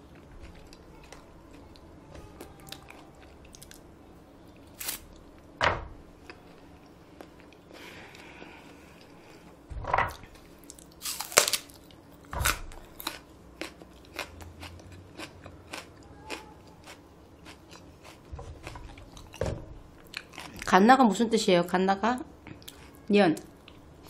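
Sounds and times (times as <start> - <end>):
chewing crunchy food: 0.0 - 3.9, 10.4 - 19.4, 20.0 - 20.7, 22.4 - 23.9.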